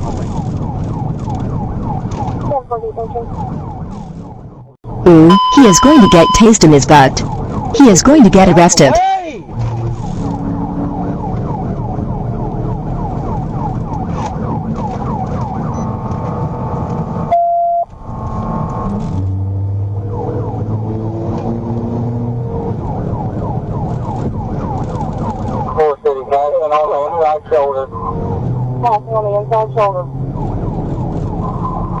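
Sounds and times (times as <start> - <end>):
vehicle engine and road noise: 0.0 - 32.0
police siren yelping: 0.5 - 9.1, 9.8 - 16.3
short beep: 5.1 - 7.1, 17.3 - 17.9.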